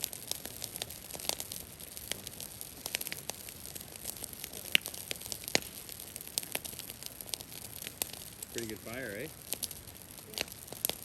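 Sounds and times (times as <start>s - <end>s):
brush fire crackling: 0.0s - 11.0s
faint steady hiss: 0.0s - 11.0s.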